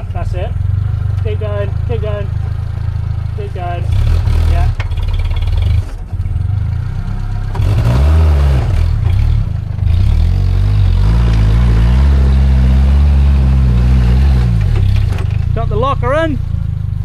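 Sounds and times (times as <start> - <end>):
car engine revving hard: 3.6 - 6.6, 7.3 - 15.4.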